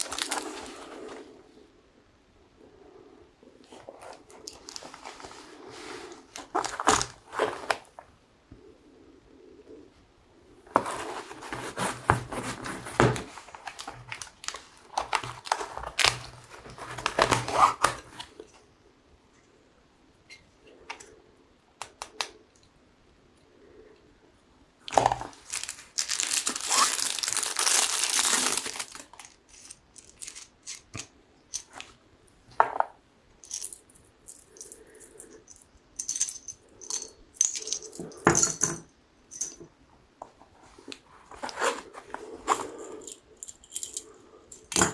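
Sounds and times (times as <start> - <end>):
packaging crinkling and tearing: 0.0 - 1.0, 3.9 - 5.4, 6.3 - 8.0, 10.8 - 18.3, 24.9 - 30.9.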